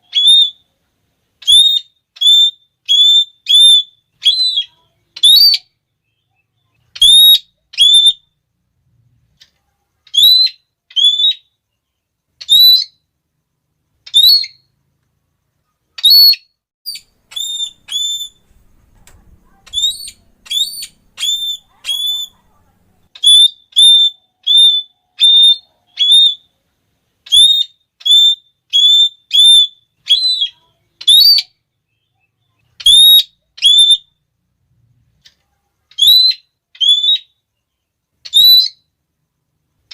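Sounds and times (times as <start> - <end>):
parrot shrill calls: 0.0 - 0.6, 1.4 - 5.8, 6.9 - 8.3, 10.1 - 11.5, 12.4 - 13.0, 14.0 - 14.7, 16.0 - 22.5, 23.1 - 26.5, 27.2 - 31.6, 32.8 - 34.2, 35.9 - 37.4, 38.2 - 38.9.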